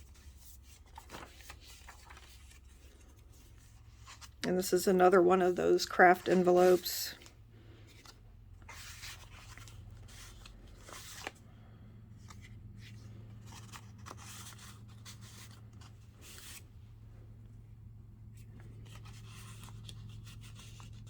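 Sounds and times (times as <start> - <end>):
paper rustling and crinkling: 0.0 - 16.8, 18.3 - 21.0
low steady hum: 0.0 - 21.0.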